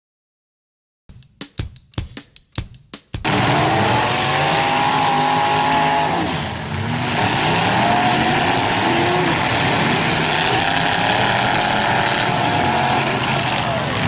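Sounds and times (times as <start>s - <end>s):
car engines revving: 3.2s - 14.0s.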